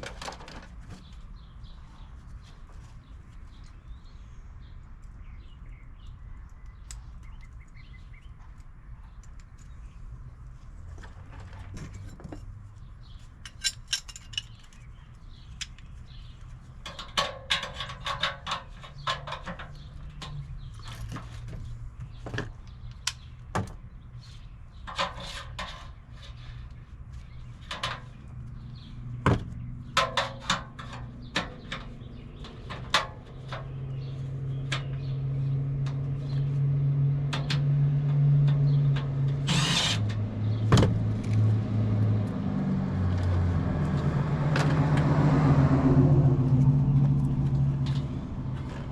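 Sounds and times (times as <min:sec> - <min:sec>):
tool knocks and clicks: 0:38.6 - 0:41.1
cordless driver whirring: 0:39.4 - 0:40.1.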